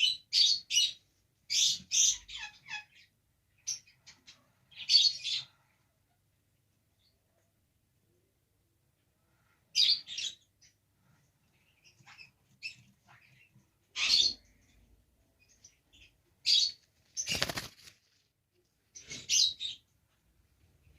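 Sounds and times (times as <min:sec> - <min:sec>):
lovebirds chirping shrilly: 0:11.7 - 0:14.8, 0:15.4 - 0:17.9.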